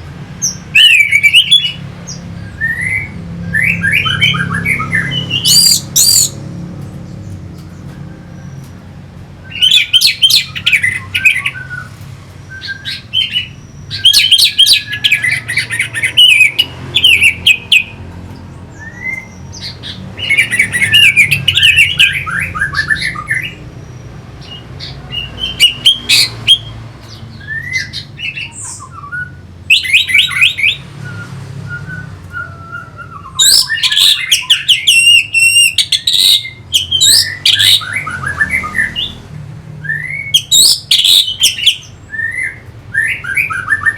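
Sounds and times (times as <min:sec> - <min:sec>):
thrush singing: 0:07.9 - 0:43.9.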